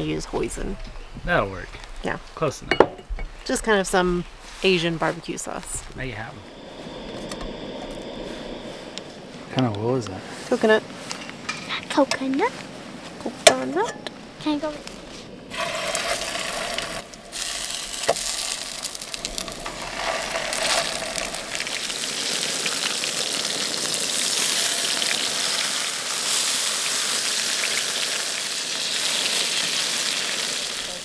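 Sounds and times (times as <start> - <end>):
chicken sizzling in a frying pan: 15.5 - 31.0.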